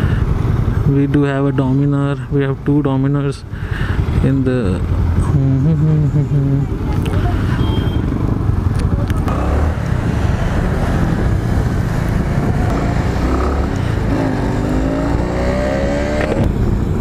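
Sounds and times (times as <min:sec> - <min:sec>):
motorcycle engine rumble: 0:00.0 - 0:17.0
road noise: 0:00.0 - 0:17.0
motorcycle engine revving up: 0:09.2 - 0:17.0.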